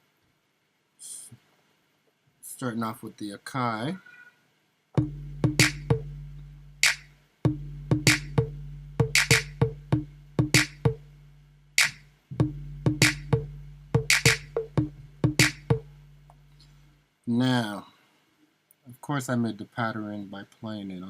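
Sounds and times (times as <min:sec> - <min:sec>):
hip-hop drum beat: 0:05.0 - 0:16.5
steady low bass tone: 0:05.0 - 0:17.0.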